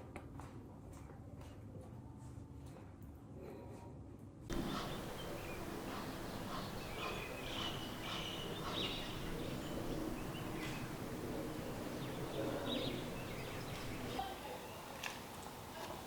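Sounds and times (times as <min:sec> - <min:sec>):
birds chirping: 0:04.5 - 0:15.2
outdoor background hiss: 0:04.5 - 0:16.0.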